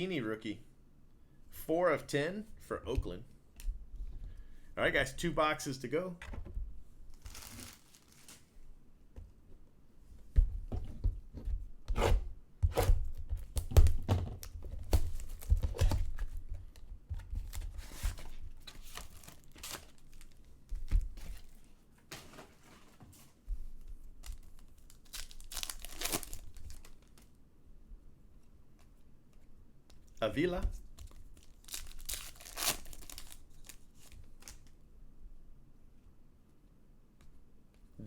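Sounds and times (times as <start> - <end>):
packaging tearing and crinkling: 7.1 - 8.4, 24.3 - 27.3, 31.0 - 34.7.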